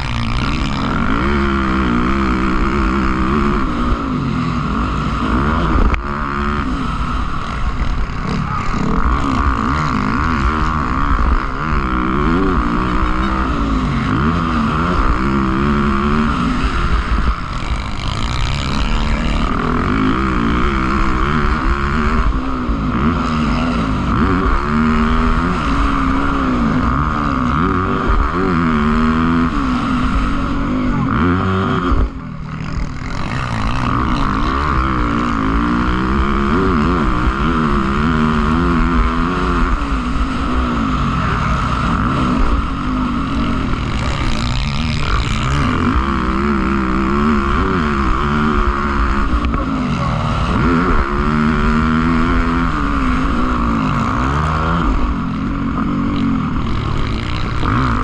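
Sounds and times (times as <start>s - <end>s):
motocross engines revving: 0.0s - 58.0s.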